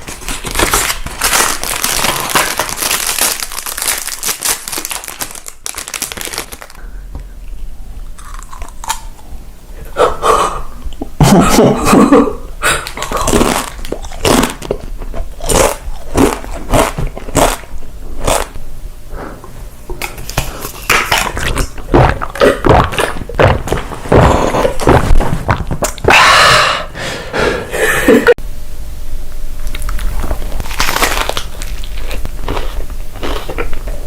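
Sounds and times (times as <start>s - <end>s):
person chewing crunchy food: 0.0s - 9.5s, 12.6s - 18.6s, 19.4s - 26.2s, 29.6s - 34.0s.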